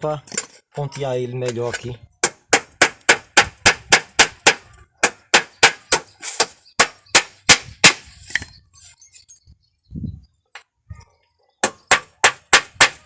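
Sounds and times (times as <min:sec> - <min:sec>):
hammer striking nails: 0:02.2 - 0:08.1, 0:11.6 - 0:13.0.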